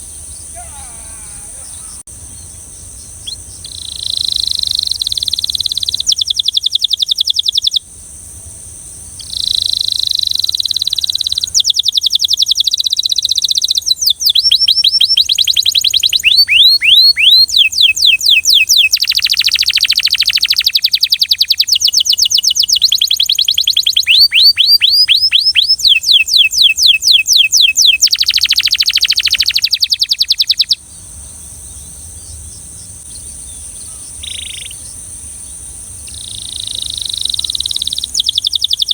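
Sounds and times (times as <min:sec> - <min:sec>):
canary singing trills: 0:00.0 - 0:07.8, 0:09.2 - 0:38.9
faint high hiss: 0:00.0 - 0:16.2, 0:28.3 - 0:38.9.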